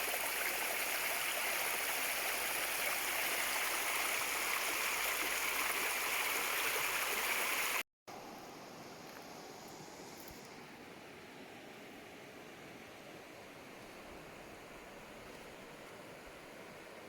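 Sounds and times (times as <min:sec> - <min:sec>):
stream water rushing: 0:00.0 - 0:07.8
faint steady hiss: 0:00.0 - 0:17.0.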